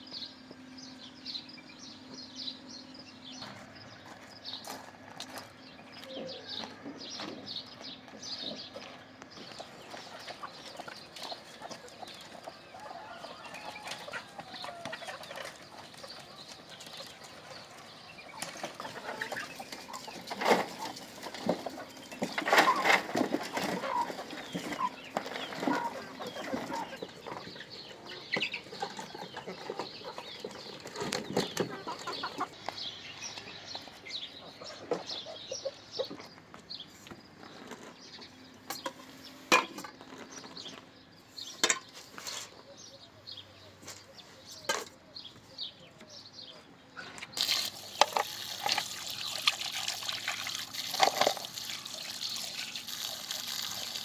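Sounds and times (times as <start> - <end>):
chickens clucking: 3.4 - 54.0
running water hiss: 47.4 - 54.0.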